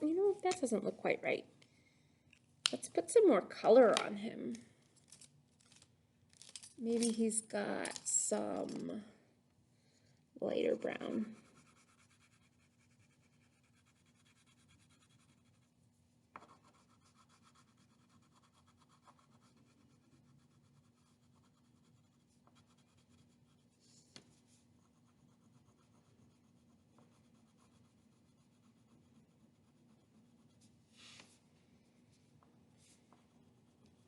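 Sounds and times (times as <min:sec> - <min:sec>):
colouring tool scratching paper: 0:11.2 - 0:15.8, 0:16.4 - 0:23.8, 0:24.7 - 0:30.7.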